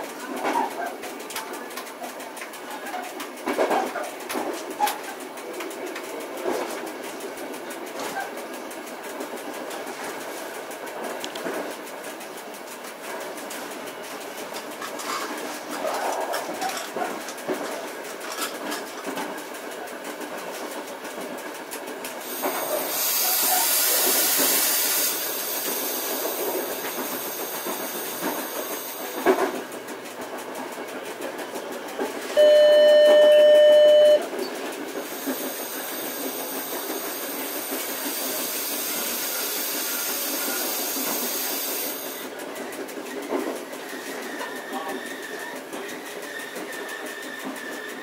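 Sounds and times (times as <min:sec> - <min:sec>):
train rail running noise: 0:00.0 - 0:48.0
loud steady beep: 0:32.4 - 0:34.3.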